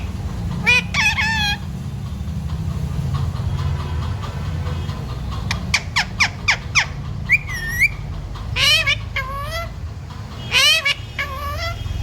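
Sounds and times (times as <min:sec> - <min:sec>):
parrot chirping and calling: 0:00.0 - 0:01.8, 0:05.5 - 0:12.0
parrot whistle: 0:00.6 - 0:01.6, 0:06.0 - 0:08.0.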